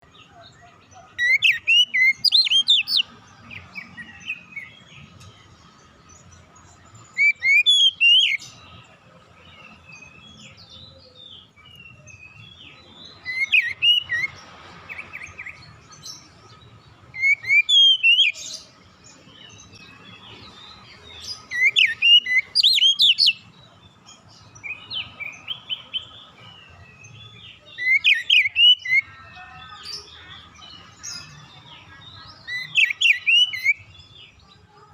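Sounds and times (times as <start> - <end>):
soft bird twittering: 0.0 - 34.4
bird whistling song: 1.2 - 3.1, 7.1 - 8.7, 9.6 - 15.6, 17.1 - 18.7, 19.8 - 23.5, 24.5 - 29.2, 32.3 - 33.9.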